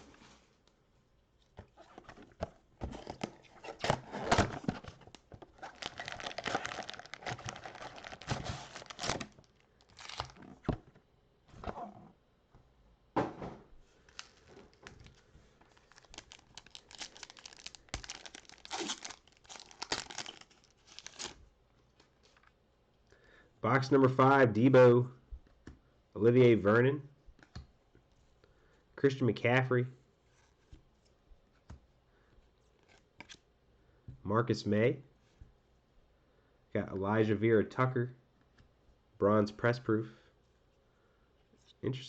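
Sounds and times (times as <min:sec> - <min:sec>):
plastic wrapping crinkling and tearing: 0:03.1 - 0:10.5, 0:14.1 - 0:21.4.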